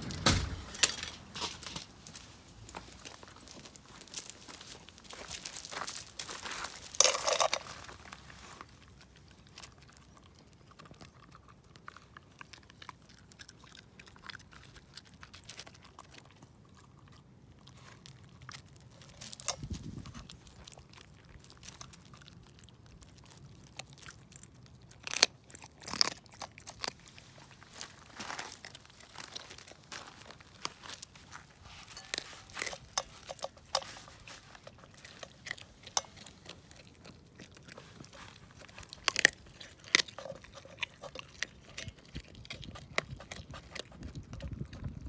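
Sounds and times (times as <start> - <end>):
dull thump: 0.0 - 1.2
dog chewing and crunching bones: 0.1 - 45.0.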